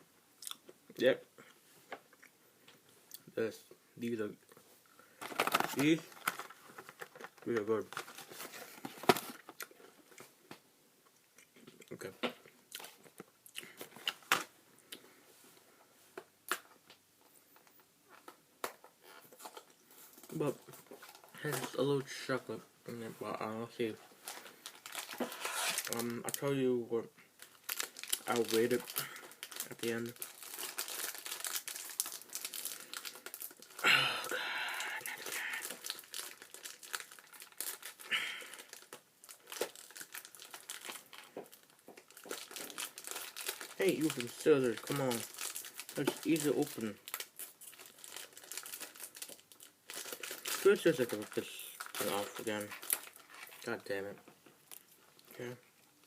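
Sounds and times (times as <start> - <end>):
plastic wrapper crinkling: 5.2 - 9.6, 24.2 - 26.6, 27.4 - 55.6.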